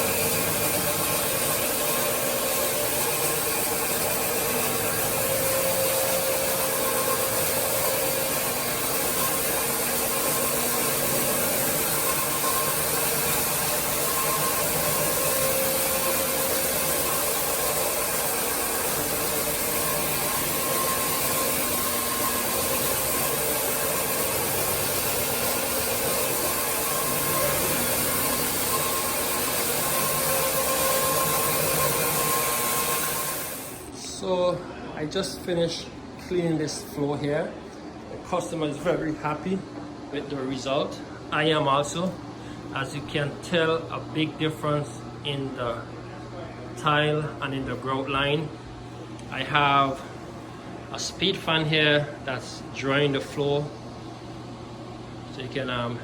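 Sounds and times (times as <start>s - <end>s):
floor cleaning machine running: 0.0s - 34.4s.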